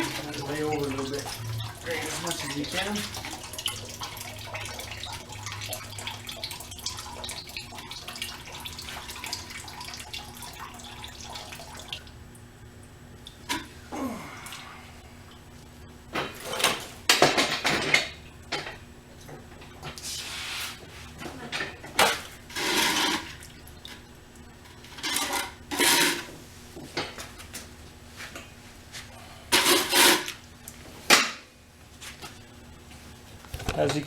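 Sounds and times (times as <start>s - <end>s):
coolant splashing into pan: 0.0s - 12.2s.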